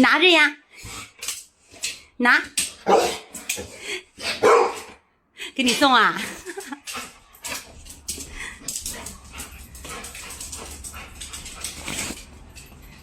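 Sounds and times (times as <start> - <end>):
quick clicks and scuffs: 10.4 - 12.7.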